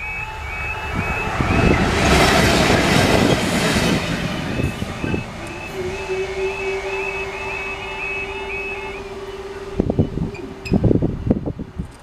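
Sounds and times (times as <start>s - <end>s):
warbling crossing alarm: 0.0s - 11.7s
train rushing past: 0.0s - 11.8s
barrier motor hum: 4.1s - 11.6s.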